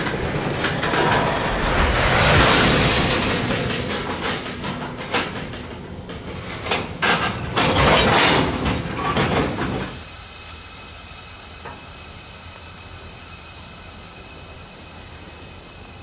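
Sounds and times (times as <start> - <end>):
wheels clicking over rail joints: 0.0 - 1.5, 3.1 - 10.0
freight train rushing rumble: 0.0 - 16.0.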